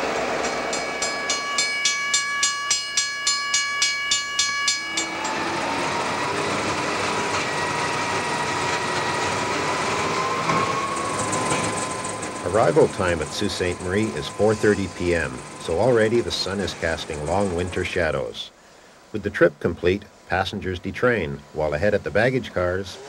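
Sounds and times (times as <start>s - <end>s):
railway bell ringing: 0.0s - 18.4s
diesel train running: 0.0s - 23.0s
faint whine: 4.7s - 23.0s.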